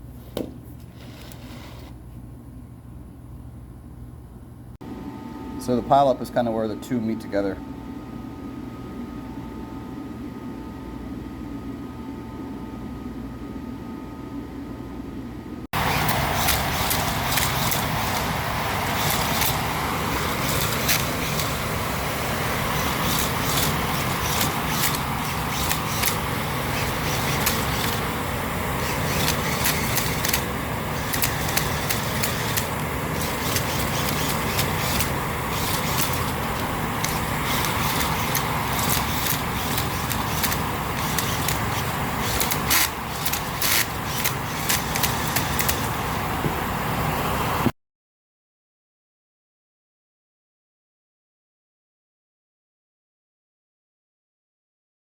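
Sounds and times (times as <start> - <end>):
machinery hum: 0.0 - 47.7
loud mechanical roar: 15.8 - 47.7.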